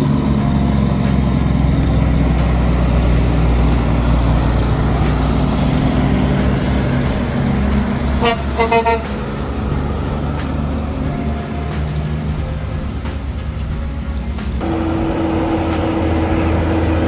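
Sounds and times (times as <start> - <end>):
truck horn toots: 0.0 - 13.1
truck diesel engine rumbling: 0.0 - 17.0.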